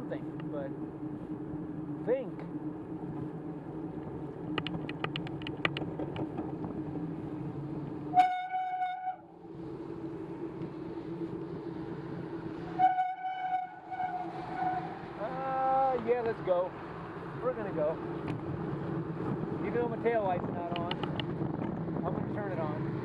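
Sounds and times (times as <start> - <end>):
steady low hum: 0.0 - 23.0
quick run of clicks: 4.5 - 6.5, 20.6 - 21.8
long horn blasts: 8.1 - 9.3, 12.6 - 15.2.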